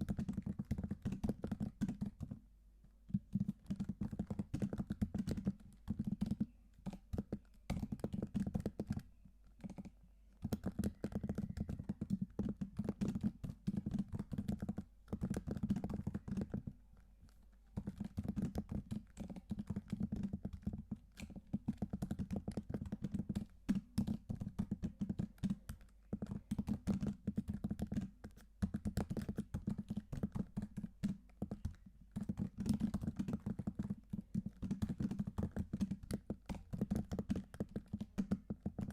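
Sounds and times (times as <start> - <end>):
keyboard typing: 0.0 - 2.4, 3.1 - 38.9.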